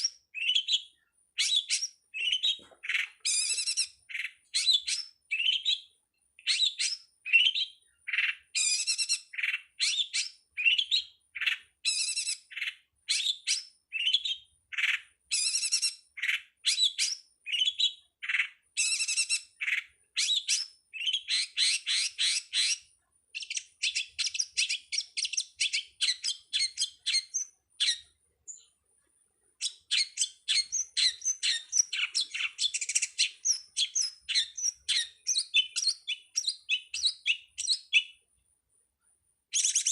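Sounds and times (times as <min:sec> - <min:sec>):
bird harsh chattering calls: 0:01.4 - 0:05.7, 0:29.6 - 0:38.1.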